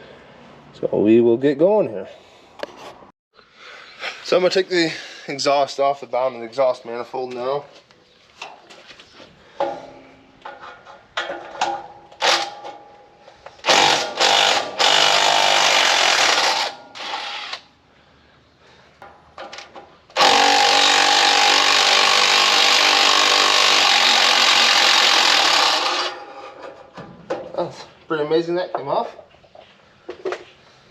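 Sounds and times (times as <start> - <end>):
tools clicking and clanking: 9.6 - 14.2, 19.0 - 20.2.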